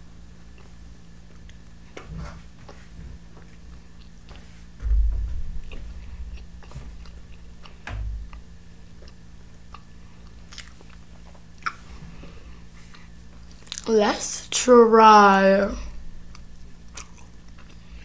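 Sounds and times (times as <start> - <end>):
low thumps: 4.8 - 8.5
chewing food: 5.7 - 12.0, 12.7 - 13.9, 16.3 - 18.0
wet mouth clicks: 11.6 - 11.8.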